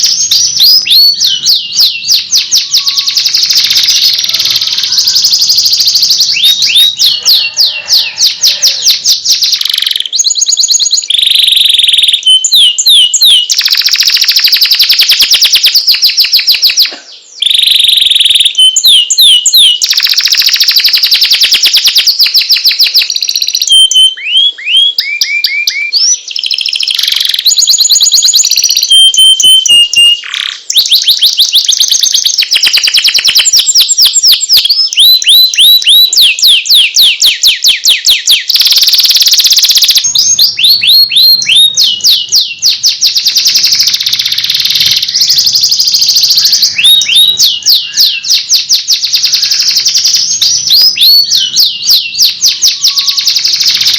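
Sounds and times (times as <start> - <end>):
canary singing: 0.0 - 53.9.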